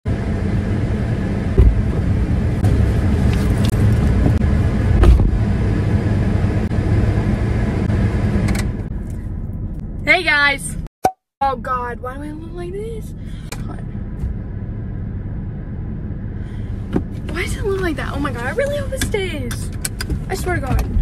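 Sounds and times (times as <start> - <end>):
car engine idling: 0.1 - 10.8, 11.4 - 21.0
heavy thump of driver sitting: 1.5 - 2.1, 4.2 - 5.4.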